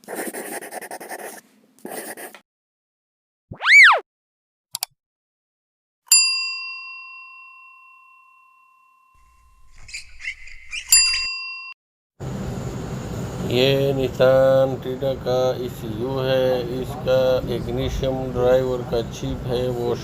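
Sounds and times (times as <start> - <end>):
rising and falling tone: 3.5 - 4.0
clicks: 4.7 - 4.9
bell-like ding: 6.1 - 9.4, 11.0 - 11.8.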